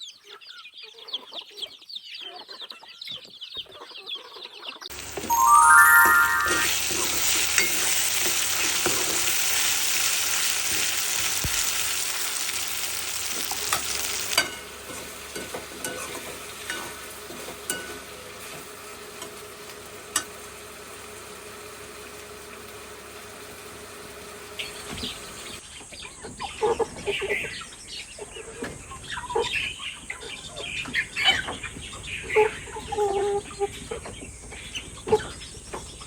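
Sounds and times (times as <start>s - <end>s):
rising chime-like tones: 5.2s - 7.0s.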